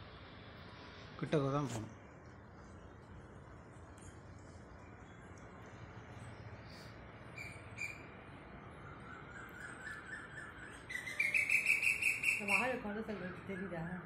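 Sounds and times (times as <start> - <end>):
small birds chirping: 1.8 - 14.0.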